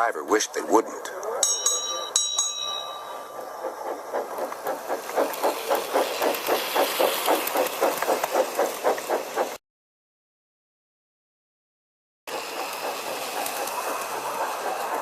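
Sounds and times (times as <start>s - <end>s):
steam engine chuffing: 2.0s - 9.6s, 12.3s - 15.0s.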